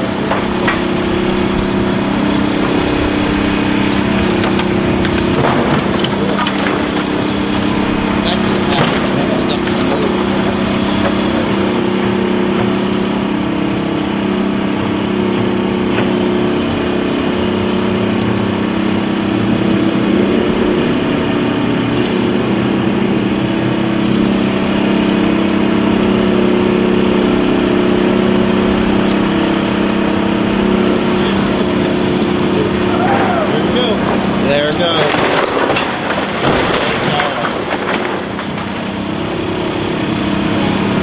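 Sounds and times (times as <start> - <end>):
diesel demolition machinery running: 0.0 - 41.0.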